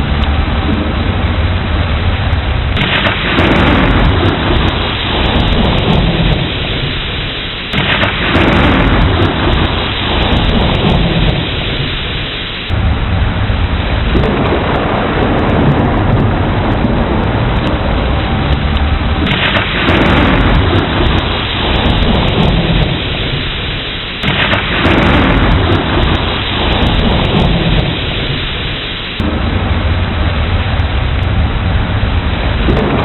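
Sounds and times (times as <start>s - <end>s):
heavy rain: 0.0s - 33.0s
rolling thunder: 0.0s - 33.0s.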